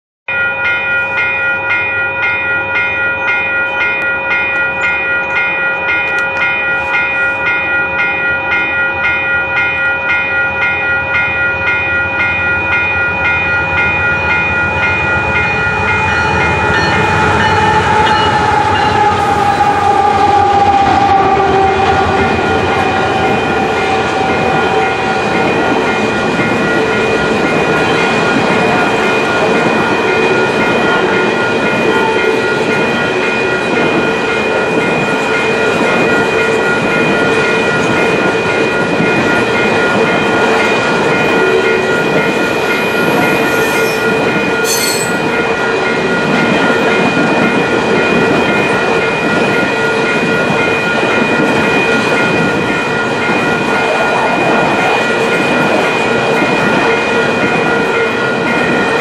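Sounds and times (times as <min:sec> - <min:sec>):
train bell ringing: 0:00.3 - 0:59.0
diesel locomotives passing: 0:01.2 - 0:59.0
train horn chord: 0:16.0 - 0:25.5.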